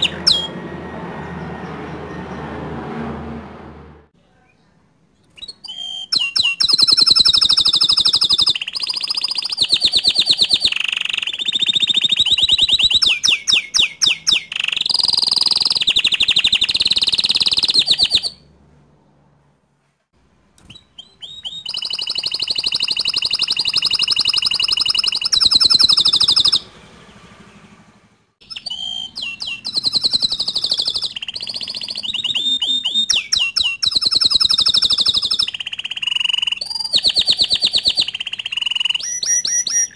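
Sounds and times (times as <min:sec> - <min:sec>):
canary singing trills: 0:00.0 - 0:02.6, 0:04.4 - 0:18.6, 0:20.6 - 0:27.8, 0:28.4 - 0:39.9.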